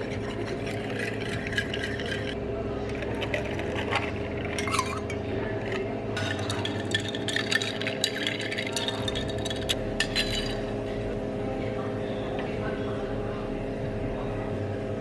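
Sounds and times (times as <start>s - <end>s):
glassware and utensils clinking: 0.0s - 10.8s
cafe equipment hum: 0.0s - 15.0s.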